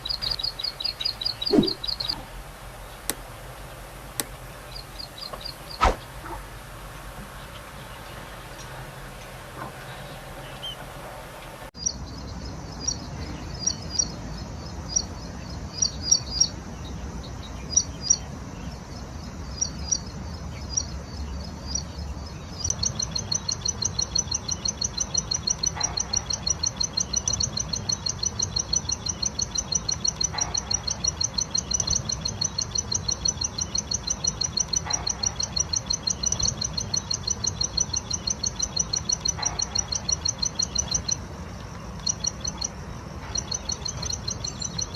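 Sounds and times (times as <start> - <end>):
bird high sharp chirps: 0.0 - 3.3
fast repeated high bird notes: 0.0 - 6.1.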